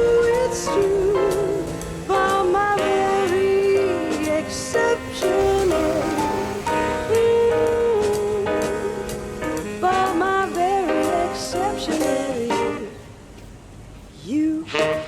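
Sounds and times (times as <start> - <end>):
jazz band with brass and saxophone: 0.0 - 13.0, 14.6 - 15.0.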